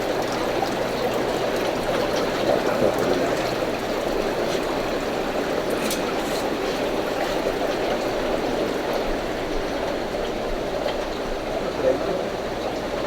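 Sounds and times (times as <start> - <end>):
water trickling through filter: 0.0 - 9.0.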